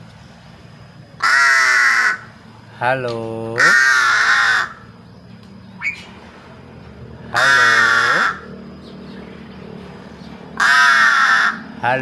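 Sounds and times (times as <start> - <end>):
crow harsh caw: 1.2 - 2.3, 3.6 - 4.8, 7.3 - 8.5, 10.6 - 11.7.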